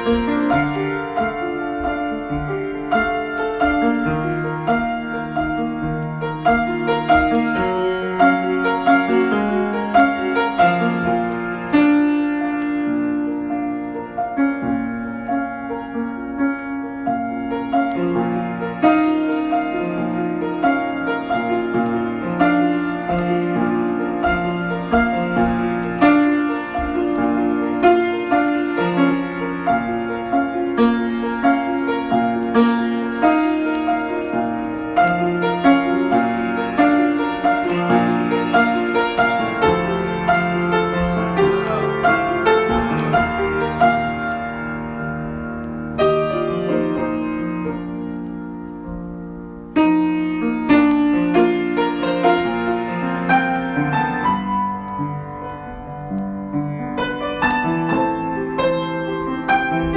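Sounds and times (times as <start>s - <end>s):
solo piano improvisation: 0.0s - 59.9s.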